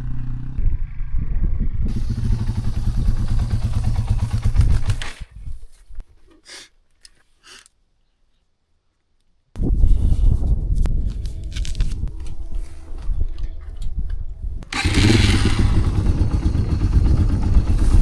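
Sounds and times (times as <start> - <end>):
motorcycle engine running: 0.0 - 5.3, 14.6 - 18.0.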